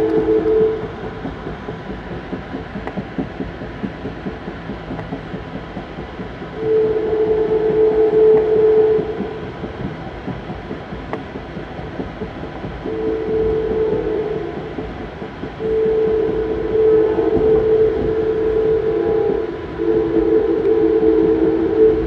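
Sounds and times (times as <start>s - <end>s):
train rumble: 0.0s - 22.0s
wheels clattering on rails: 0.0s - 22.0s
locomotive horn blast: 15.6s - 22.0s.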